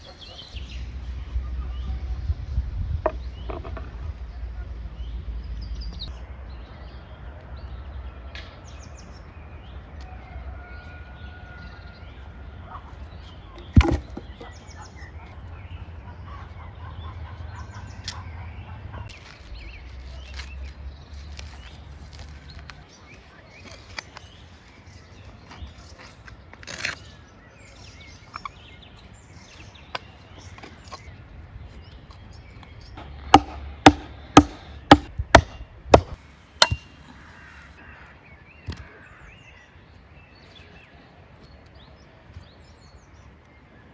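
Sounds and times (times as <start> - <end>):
birds calling: 0.0 - 1.9
chopping strokes: 33.3 - 37.0
sharp knock: 33.4 - 37.0.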